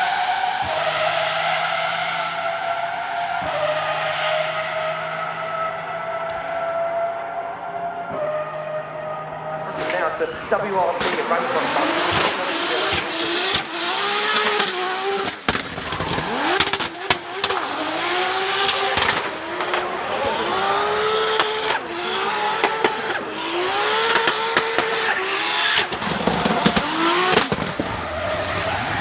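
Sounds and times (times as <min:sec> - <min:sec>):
car engine accelerating: 0:00.0 - 0:29.0
tyre and road noise: 0:00.0 - 0:29.0.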